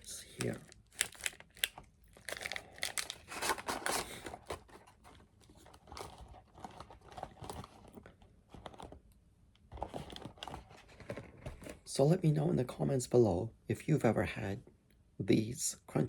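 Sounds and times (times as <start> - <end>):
wrapper crinkling: 0.0 - 8.9.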